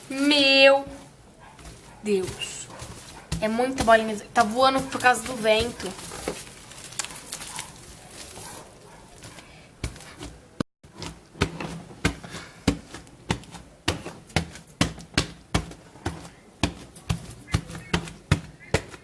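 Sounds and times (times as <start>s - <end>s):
slime squelching by hand: 0.0s - 10.4s.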